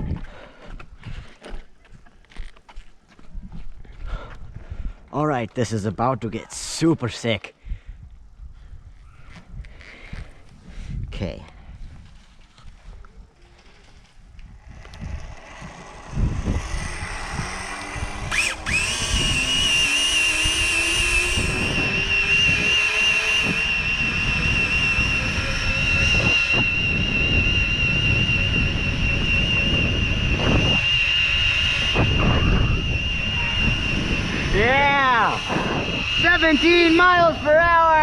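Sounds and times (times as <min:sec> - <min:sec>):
low rumbling noise: 0:11.6 - 0:38.0
electric motorcycle motor whine: 0:12.2 - 0:38.0.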